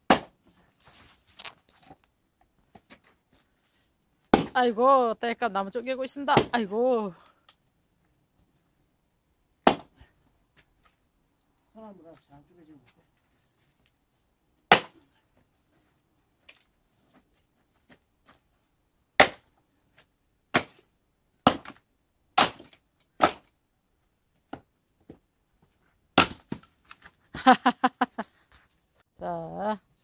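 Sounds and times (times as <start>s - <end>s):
splitting tool cracking logs: 0.1s - 0.4s, 14.7s - 15.0s, 19.2s - 19.5s, 21.4s - 21.8s, 22.4s - 23.6s, 26.2s - 27.1s.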